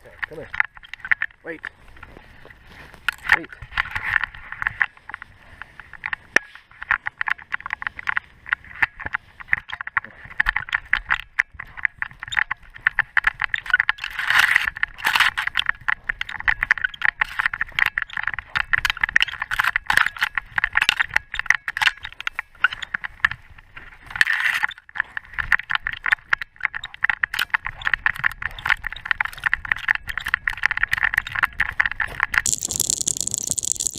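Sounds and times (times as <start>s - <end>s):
camera rattling and clicking: 0.0s - 1.6s, 2.9s - 33.9s.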